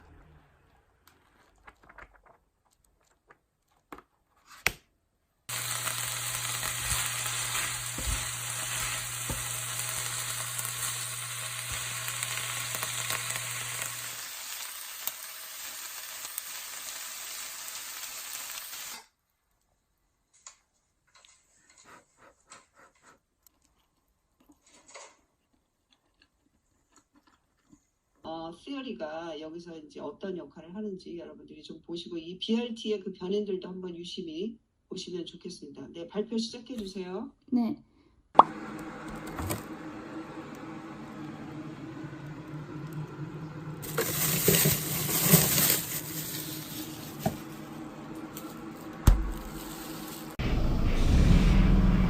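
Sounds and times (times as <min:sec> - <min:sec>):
faint small clicks and rustles: 0:01.1 - 0:04.5
food sizzling in a frying pan: 0:05.5 - 0:19.1, 0:41.6 - 0:50.4.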